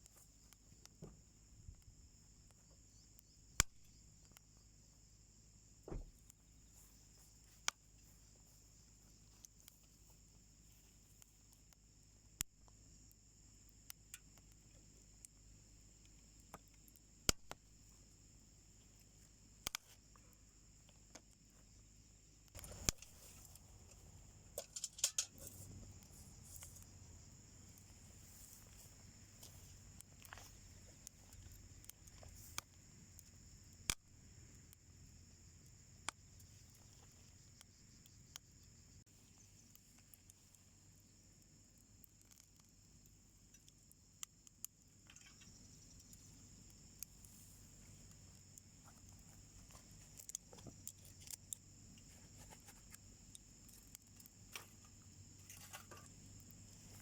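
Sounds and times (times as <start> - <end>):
wood fire crackling and popping: 0.0 - 4.6, 6.0 - 57.0.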